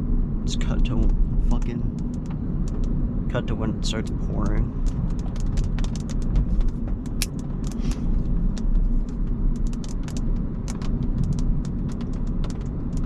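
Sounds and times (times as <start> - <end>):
low road and engine rumble: 0.0 - 13.0
raindrops tapping on car: 0.6 - 13.0.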